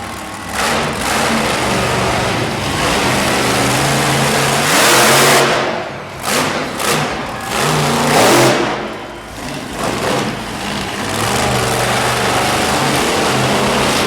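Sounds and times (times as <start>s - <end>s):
monster truck engine revving: 0.0s - 14.0s.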